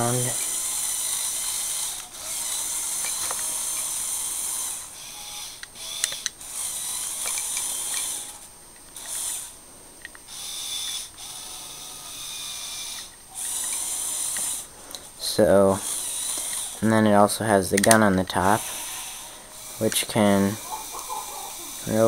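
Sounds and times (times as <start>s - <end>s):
small electric motor whirring: 0.0s - 22.0s
plastic clicks: 5.6s - 6.4s, 17.7s - 18.0s.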